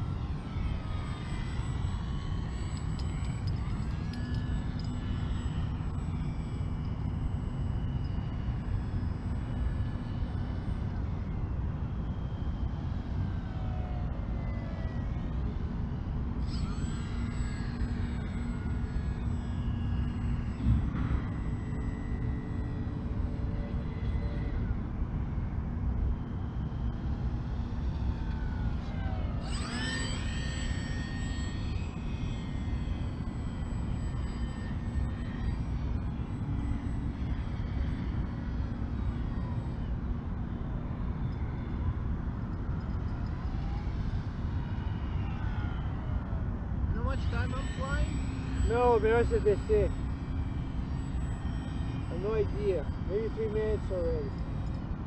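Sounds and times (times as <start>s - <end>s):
model plane motor whining: 0.0s - 25.2s, 25.9s - 55.0s.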